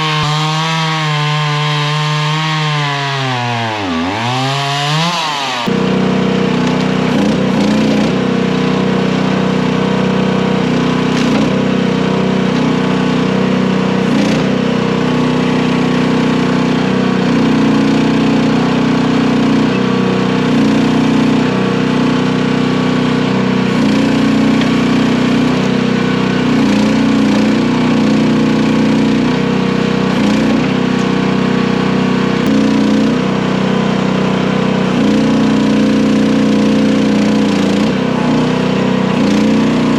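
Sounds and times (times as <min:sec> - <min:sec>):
small loader engine running: 0:00.0 - 0:39.9.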